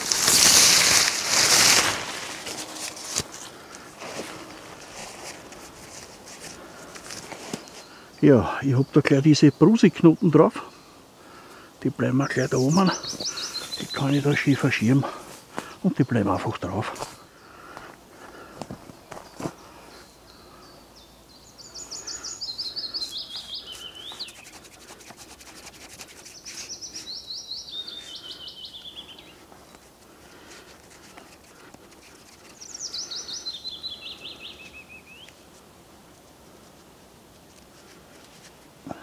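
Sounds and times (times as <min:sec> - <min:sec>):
songbird singing: 0:06.4 - 0:36.7.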